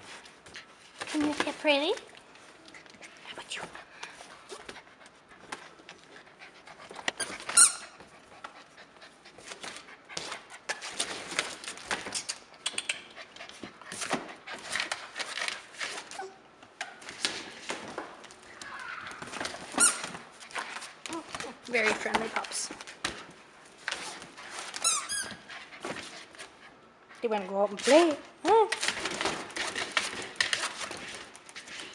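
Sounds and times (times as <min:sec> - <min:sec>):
puppies scuffling: 0:00.0 - 0:31.9
high-pitched squeak: 0:07.2 - 0:08.0, 0:24.8 - 0:25.4.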